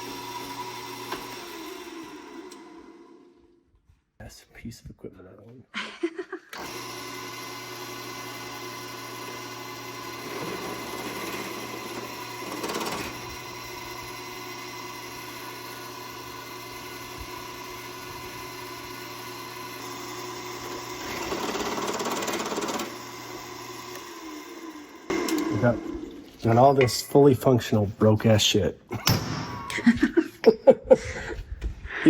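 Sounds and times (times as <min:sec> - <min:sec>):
drill press motor humming: 0:00.0 - 0:03.6, 0:06.5 - 0:26.8
drill bit cutting into metal: 0:06.6 - 0:26.9.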